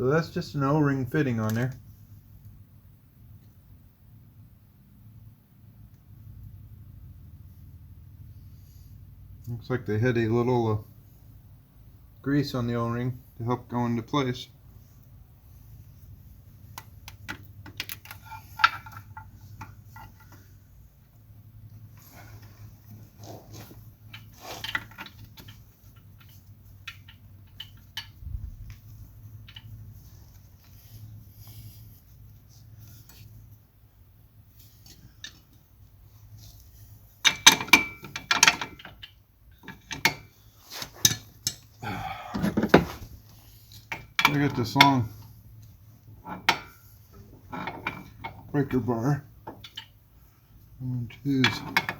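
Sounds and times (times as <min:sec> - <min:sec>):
low steady hum: 0:00.0 - 0:51.9
metal parts clicking and tapping: 0:16.7 - 0:20.5, 0:24.0 - 0:30.0, 0:37.2 - 0:42.9, 0:43.7 - 0:45.0, 0:45.6 - 0:46.8, 0:47.4 - 0:48.5, 0:49.4 - 0:50.0, 0:51.4 - 0:51.9
scraping rattle: 0:18.0 - 0:20.6.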